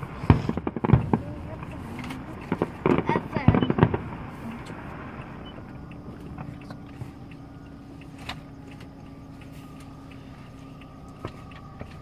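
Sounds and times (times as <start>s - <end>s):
faint fireworks crackles: 0.0s - 12.0s
fireworks rumble: 0.0s - 12.0s
sharp firework pop: 0.2s - 4.8s.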